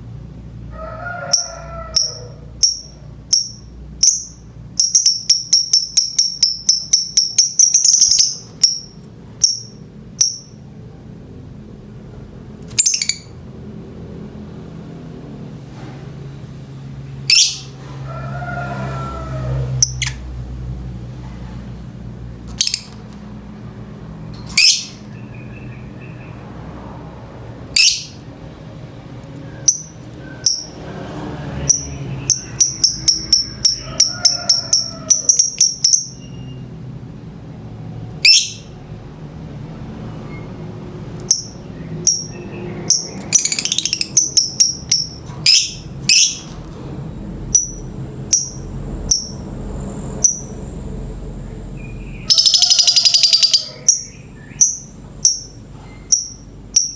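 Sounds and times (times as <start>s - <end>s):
lovebird shrill chirps: 1.3s - 10.6s, 12.7s - 13.3s, 17.3s - 17.7s, 27.7s - 28.2s, 29.6s - 30.8s, 31.7s - 36.6s, 38.2s - 38.7s, 41.2s - 46.5s, 47.6s - 49.4s, 51.8s - 56.9s.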